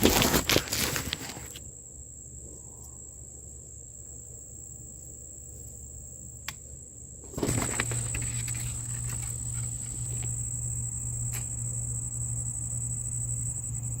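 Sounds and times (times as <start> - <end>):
rustling of plants: 0.0 - 1.7, 7.2 - 10.5
crickets trilling: 0.0 - 14.0.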